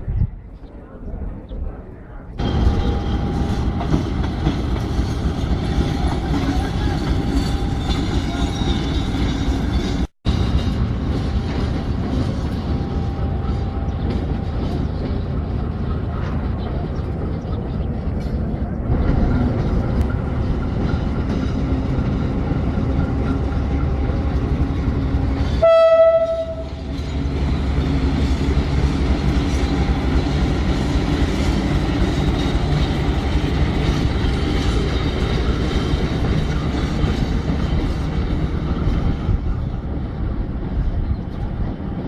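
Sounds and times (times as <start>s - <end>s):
train rumbling: 0.0s - 42.0s
train horn blast: 25.5s - 26.9s.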